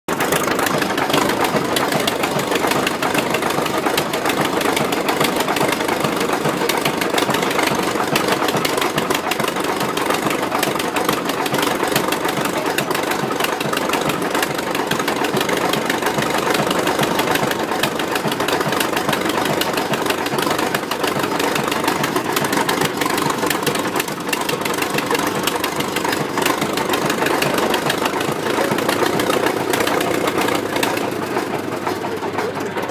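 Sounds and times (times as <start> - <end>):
tractor engine running steadily: 0.1 - 32.9.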